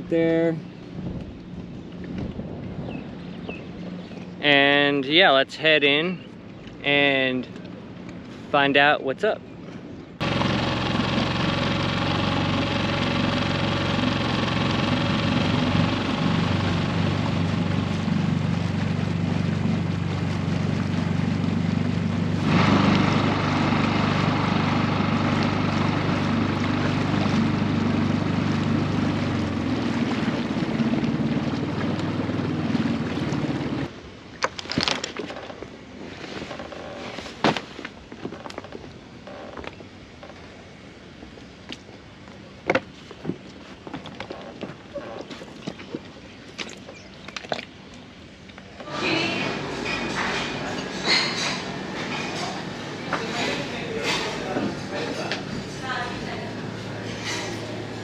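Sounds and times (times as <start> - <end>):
outboard motor running: 9.8 - 33.9, 48.5 - 58.0.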